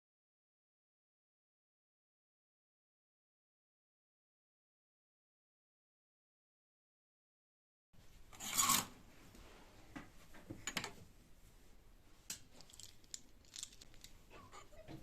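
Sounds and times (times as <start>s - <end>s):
loud scraping or tearing: 8.4s - 8.9s.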